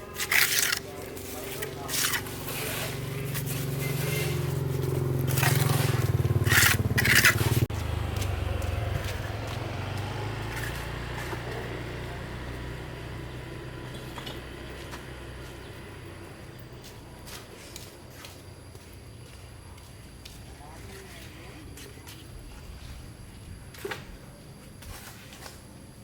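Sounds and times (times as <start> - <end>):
loud scrapes: 0.1 - 7.7.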